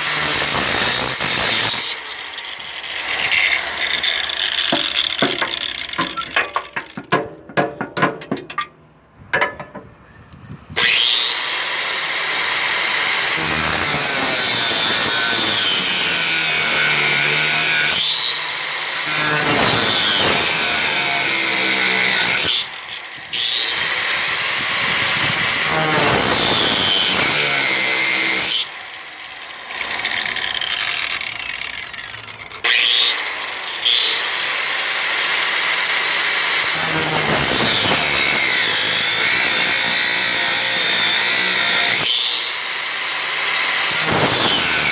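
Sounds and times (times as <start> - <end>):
power tool cutting bolts: 0.0 - 8.7, 10.8 - 44.9
clattering knocks: 3.8 - 10.0.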